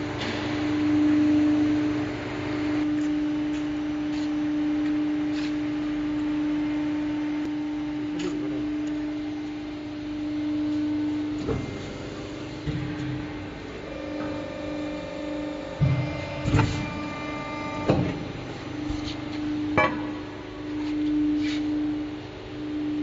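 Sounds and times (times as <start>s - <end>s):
hydraulic pump humming: 7.0s - 23.0s.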